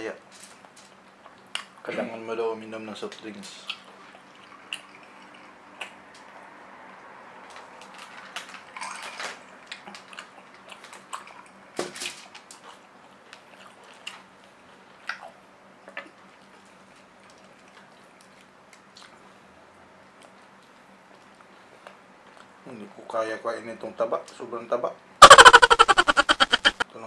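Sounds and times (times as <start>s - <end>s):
quiet chewing: 0.5s - 1.9s, 9.6s - 11.6s, 12.3s - 22.6s.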